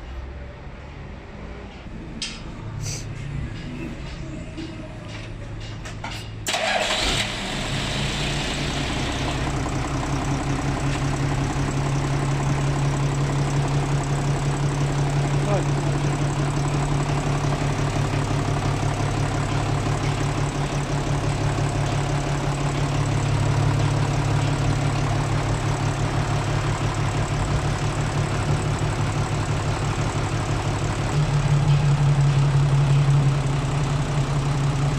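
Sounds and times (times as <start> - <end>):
truck diesel engine idling: 6.4 - 34.9.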